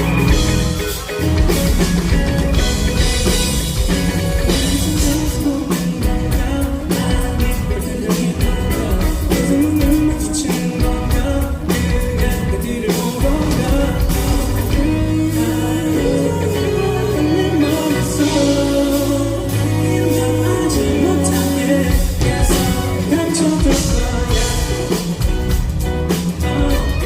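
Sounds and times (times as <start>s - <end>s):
live pop-rock band with singing: 0.0s - 27.0s.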